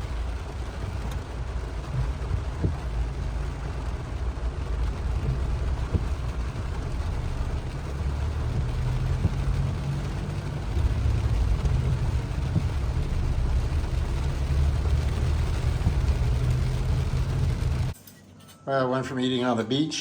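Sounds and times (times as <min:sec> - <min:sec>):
noise hiss: 0:00.0 - 0:17.9
road and engine rumble: 0:00.0 - 0:18.0.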